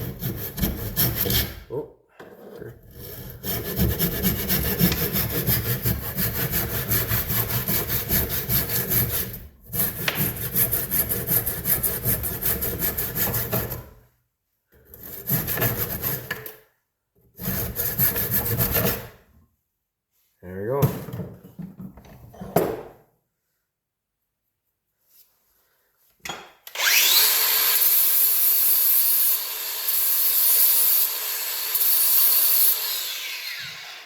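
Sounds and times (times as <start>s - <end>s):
saw cutting wood: 0.0s - 1.7s, 2.5s - 13.9s, 15.0s - 16.5s, 17.4s - 19.1s, 26.7s - 34.0s.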